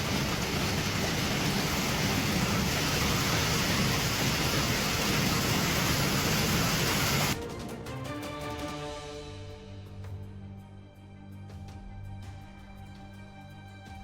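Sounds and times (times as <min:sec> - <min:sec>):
rushing flood water: 0:00.0 - 0:07.4.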